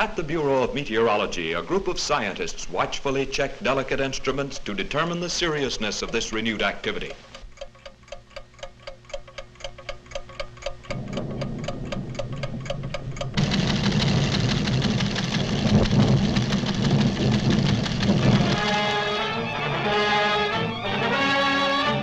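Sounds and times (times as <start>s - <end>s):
mechanical ticking of instruments: 4.2s - 19.1s
low hum: 10.5s - 22.0s.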